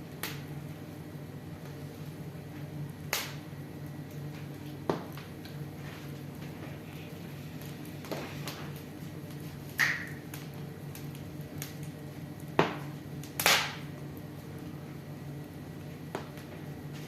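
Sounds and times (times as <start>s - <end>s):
steady low hum: 0.0s - 17.0s
wood fire crackling: 0.0s - 17.0s
fire pops: 0.2s - 0.5s, 3.0s - 14.8s, 15.8s - 17.0s.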